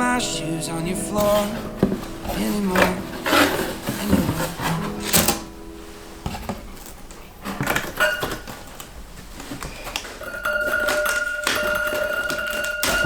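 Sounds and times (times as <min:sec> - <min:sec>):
background pop song: 0:00.0 - 0:05.9
household objects clicking: 0:06.3 - 0:13.0.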